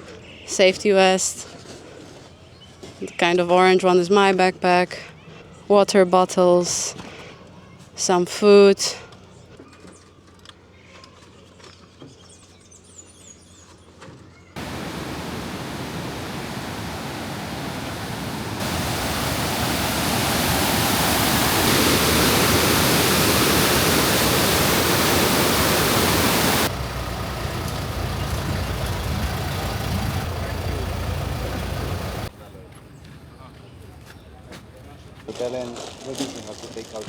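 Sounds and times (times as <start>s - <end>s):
steady rushing noise: 14.6s - 32.3s.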